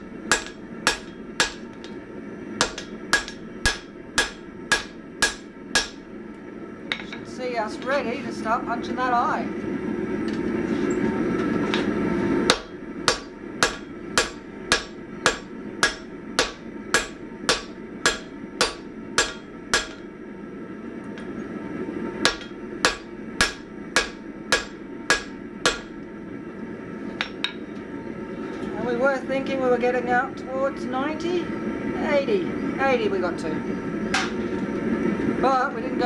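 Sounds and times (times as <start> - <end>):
hammer striking metal on anvil: 0.0 - 2.0, 2.6 - 6.1, 12.5 - 20.1, 22.2 - 26.0, 27.2 - 27.6, 34.1 - 34.4.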